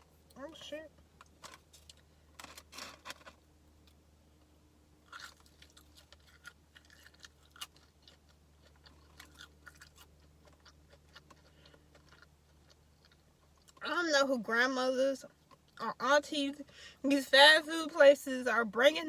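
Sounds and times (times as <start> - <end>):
person chewing crunchy food: 5.0 - 13.8.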